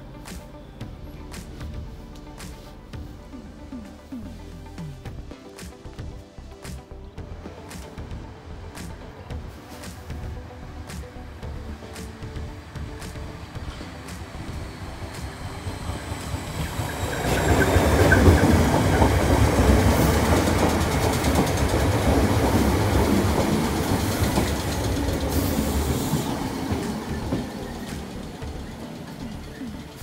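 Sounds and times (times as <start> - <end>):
train wheels rumbling on rails: 7.4 - 30.0.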